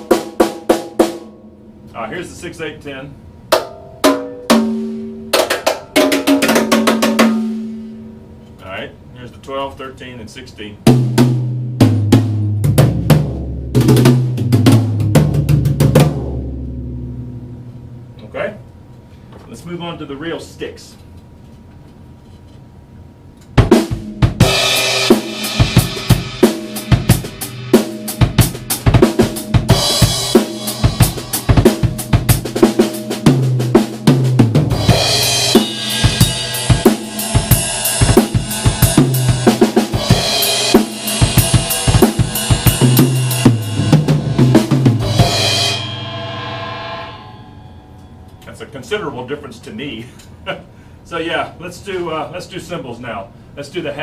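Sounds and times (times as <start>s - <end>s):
drum kit playing groove: 0.0s - 1.5s, 3.5s - 8.2s, 10.8s - 17.6s, 23.4s - 47.6s.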